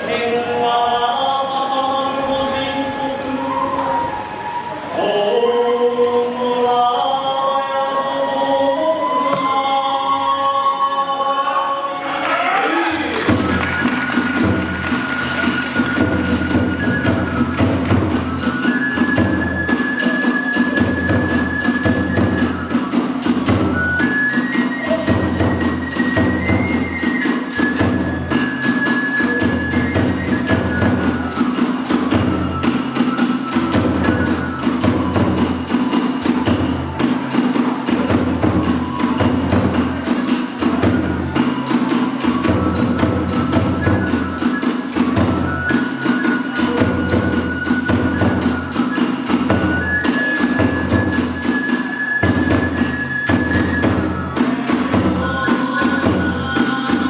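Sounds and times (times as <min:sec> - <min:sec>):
bamboo flute long notes: 0:00.0 - 0:57.0
fast drum strikes: 0:12.9 - 0:44.3.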